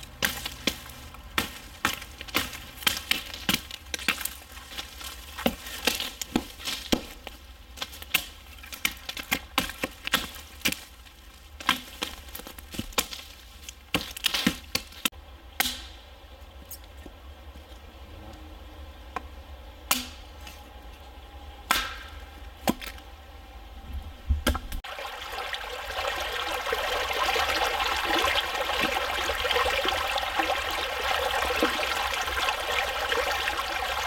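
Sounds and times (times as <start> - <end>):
dry wood cracking and snapping: 0.0 - 15.8.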